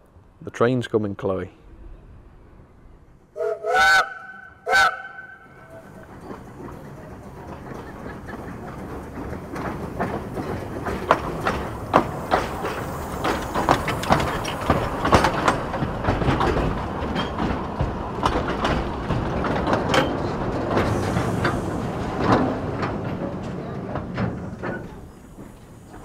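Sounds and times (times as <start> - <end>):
train rumble: 0.0 - 26.0
wheels clattering over rail joints: 5.2 - 26.0.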